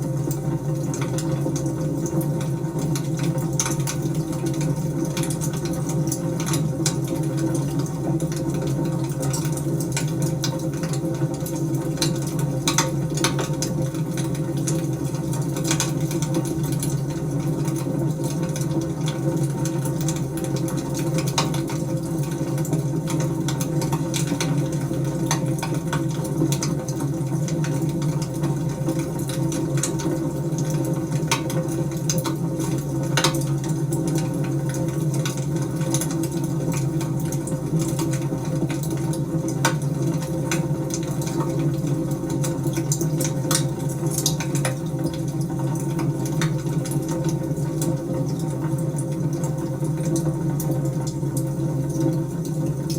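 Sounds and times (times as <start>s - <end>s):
wood fire crackling and popping: 11.5s - 14.3s.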